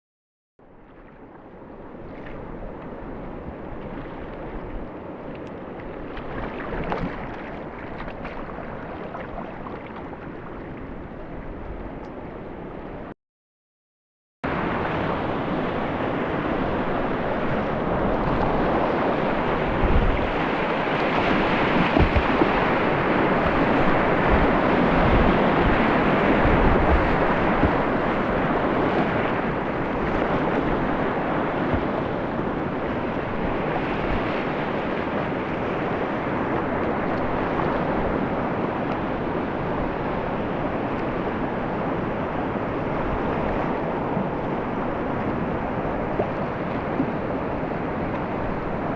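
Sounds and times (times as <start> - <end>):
river water rushing: 1.6 - 11.7, 14.5 - 48.9
wind buffeting microphone: 16.3 - 48.9.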